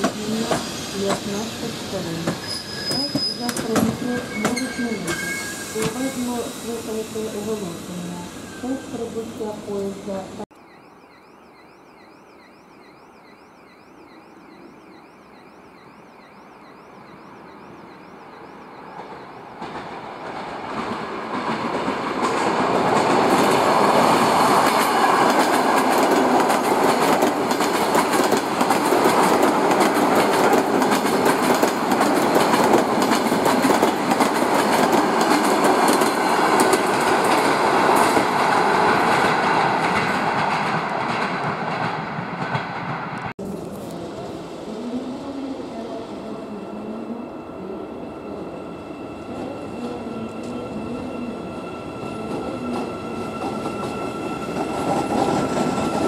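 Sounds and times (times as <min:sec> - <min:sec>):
train passing rumble: 0:14.0 - 0:56.0.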